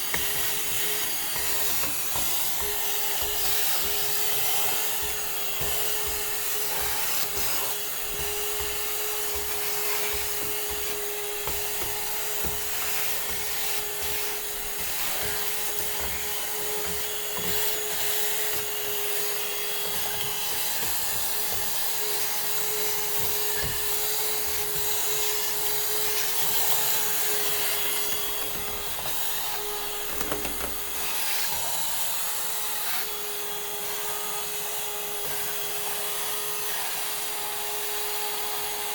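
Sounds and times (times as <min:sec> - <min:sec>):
vacuum cleaner humming: 0:00.0 - 0:38.9
nozzle knocking against wood: 0:27.8 - 0:31.1.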